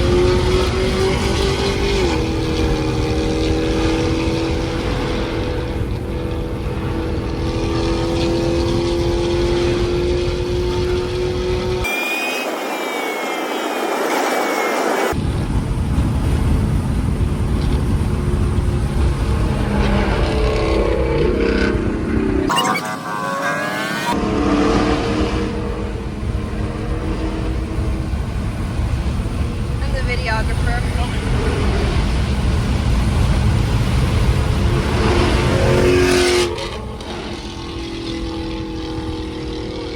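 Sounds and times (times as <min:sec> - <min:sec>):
car exhaust accelerating hard: 0:00.0 - 0:11.8, 0:15.2 - 0:22.5, 0:23.4 - 0:39.9
falling whine: 0:00.0 - 0:39.9
deep car exhaust rumble: 0:25.4 - 0:39.9.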